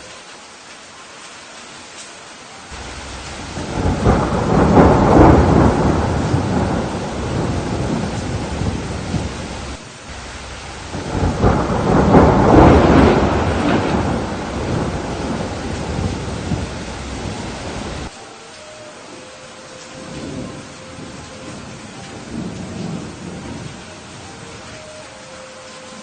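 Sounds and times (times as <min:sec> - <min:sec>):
steady rain: 0:00.0 - 0:26.0
thunder rumbling: 0:02.7 - 0:18.1, 0:19.8 - 0:24.9.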